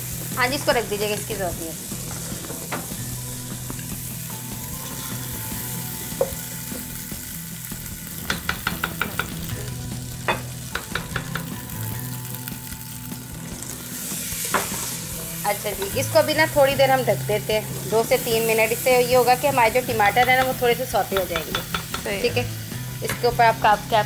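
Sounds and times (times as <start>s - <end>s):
vegetables sizzling in oil: 0.0s - 24.0s
wooden spoon knocking a pot: 8.2s - 9.5s, 10.3s - 11.6s, 21.2s - 22.1s.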